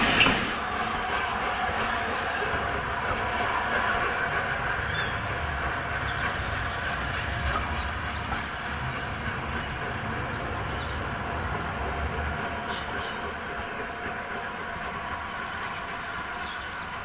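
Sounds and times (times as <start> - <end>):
train wheels running over track: 0.0 - 17.0.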